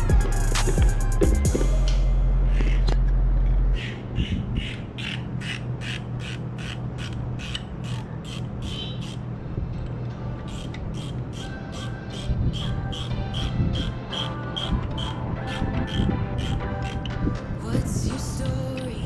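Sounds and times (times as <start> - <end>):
loud low hum: 0.0 - 5.0
ratchet wrench clicking: 10.5 - 14.3.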